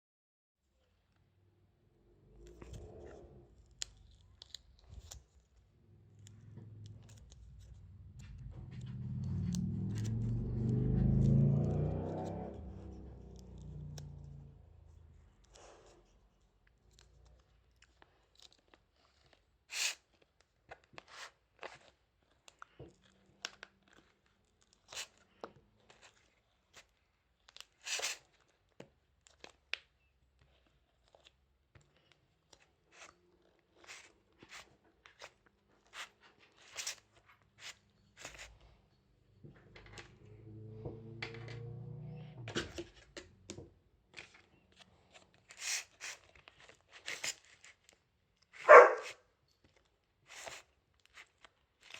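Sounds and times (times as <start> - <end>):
low drone with rising whine: 6.1 - 15.0, 39.8 - 42.5.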